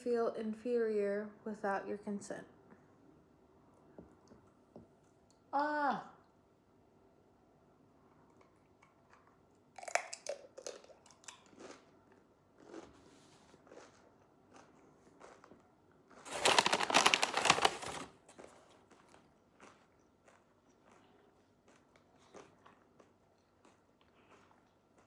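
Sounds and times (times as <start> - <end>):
person chewing crunchy food: 8.4 - 15.6, 16.2 - 25.0.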